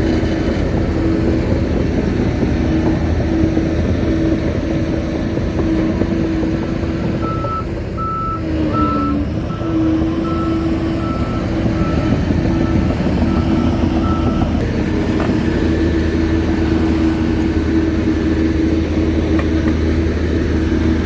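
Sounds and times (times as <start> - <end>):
bulldozer diesel engine running: 0.0 - 21.0
reverse alarm beeping: 7.2 - 14.5.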